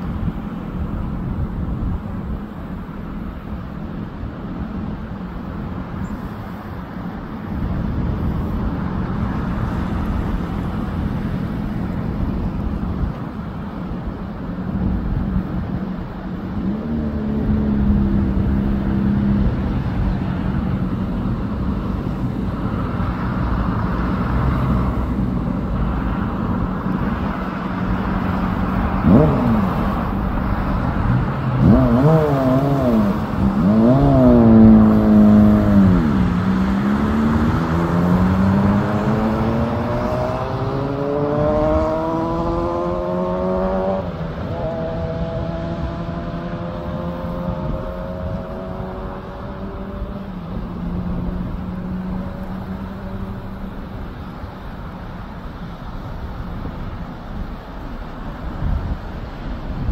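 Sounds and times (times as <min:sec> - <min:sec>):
vehicle engine revving: 0:22.6 - 0:54.8.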